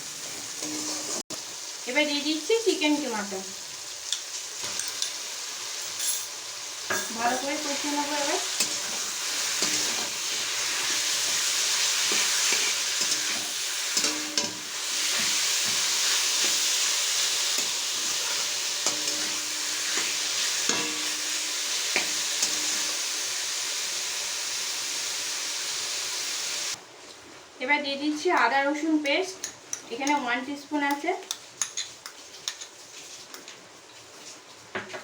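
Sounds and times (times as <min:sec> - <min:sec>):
meat sizzling in hot oil: 0:00.0 - 0:26.8.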